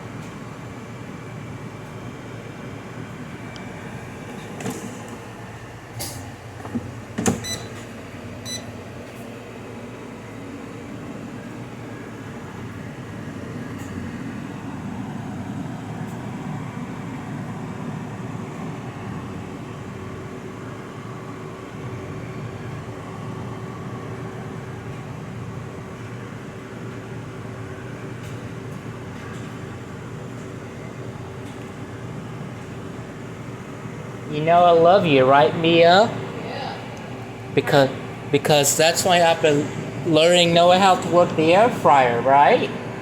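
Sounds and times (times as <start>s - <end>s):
appliance humming: 0.0s - 43.0s.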